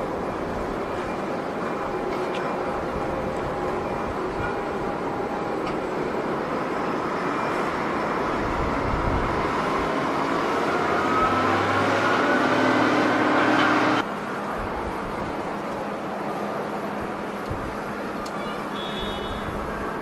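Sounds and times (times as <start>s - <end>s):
jet engines roaring: 0.0s - 20.0s
rising engine whine: 4.9s - 20.0s.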